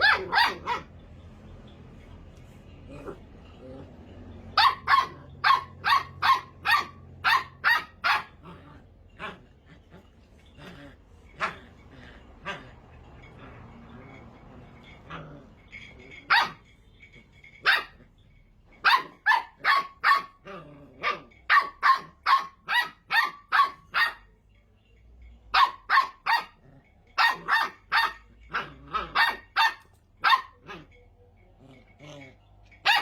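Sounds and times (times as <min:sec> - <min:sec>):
puppy yapping: 0:00.0 - 0:00.9, 0:04.5 - 0:08.6, 0:18.8 - 0:24.3, 0:27.2 - 0:31.0, 0:32.1 - 0:33.0.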